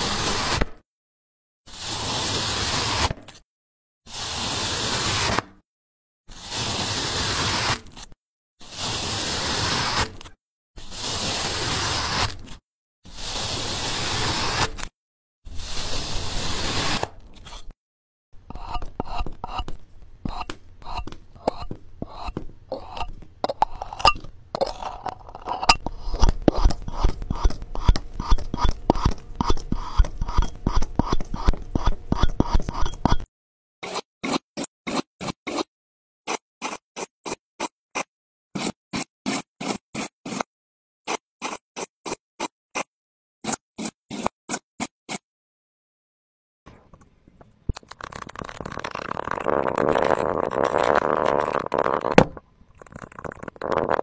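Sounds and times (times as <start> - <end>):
slime crackling and popping: 47.8 - 52.4.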